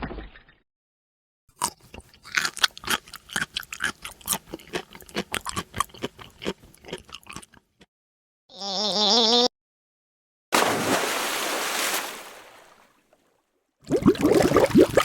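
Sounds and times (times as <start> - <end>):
animal crunching food: 1.6 - 7.6.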